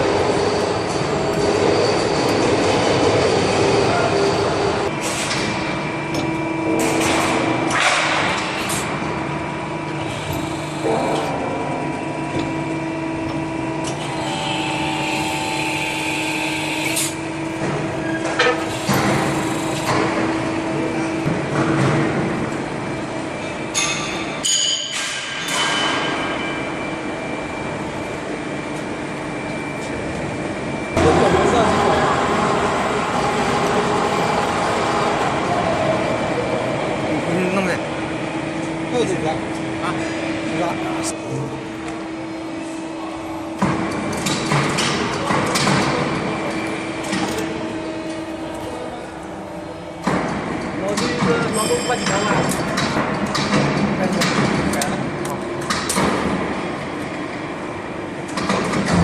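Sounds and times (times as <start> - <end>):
machine humming: 8.9 - 21.3.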